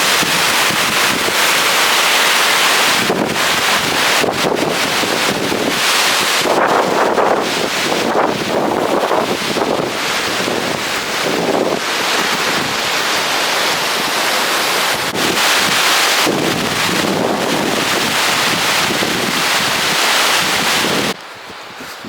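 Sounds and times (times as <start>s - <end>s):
loud rushing noise: 0.0s - 21.2s.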